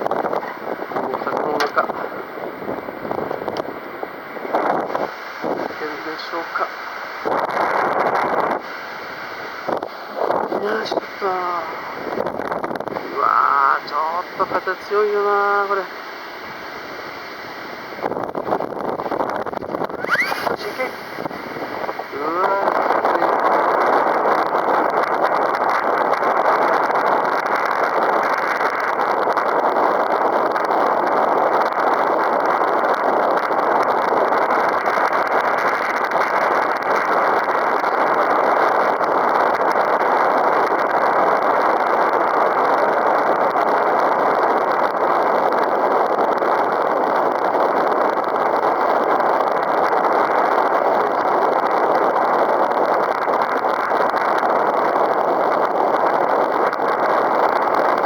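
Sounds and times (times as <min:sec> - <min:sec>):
strong wind on microphone: 0:00.0 - 0:58.0.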